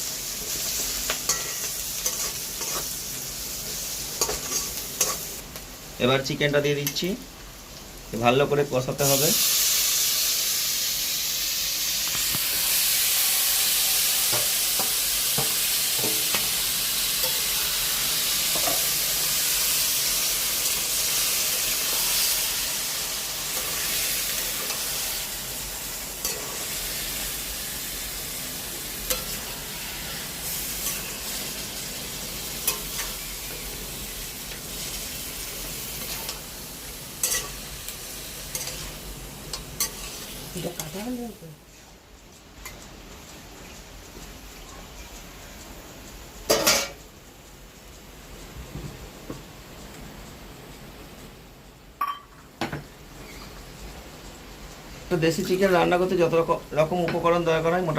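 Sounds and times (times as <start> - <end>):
chicken sizzling in hot oil: 0.0 - 57.9
spatula scraping a pan: 0.5 - 3.0, 28.7 - 31.7.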